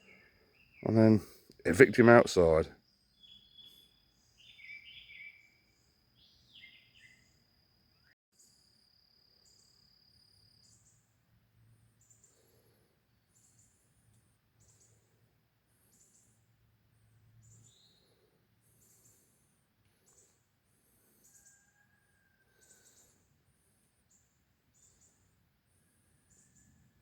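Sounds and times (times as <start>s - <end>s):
faint birds chirping: 0.0s - 27.0s
short high insect chirps: 3.2s - 11.1s.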